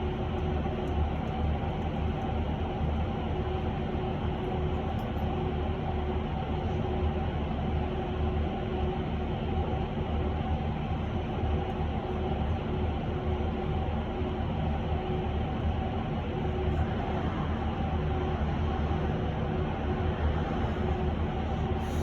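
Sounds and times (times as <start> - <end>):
road and tyre rumble: 15.6 - 22.0.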